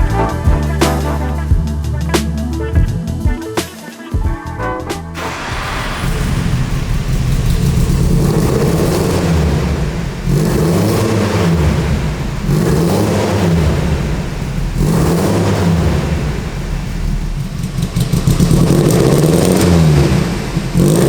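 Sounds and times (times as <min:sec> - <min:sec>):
car engine revving: 0:05.2 - 0:21.0.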